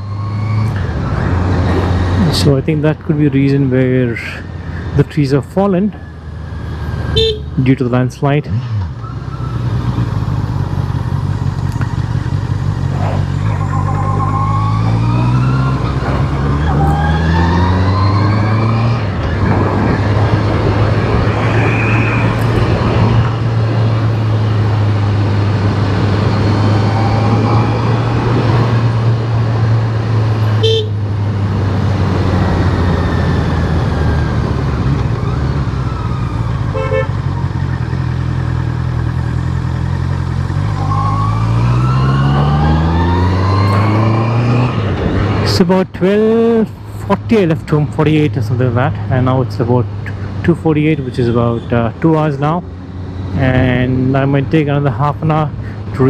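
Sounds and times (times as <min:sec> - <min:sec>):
wind and road noise: 0:00.0 - 0:56.0
horn toots: 0:07.1 - 0:07.6, 0:30.6 - 0:31.1, 0:36.7 - 0:37.3
motorcycle engine running: 0:09.2 - 0:14.4, 0:36.3 - 0:40.8.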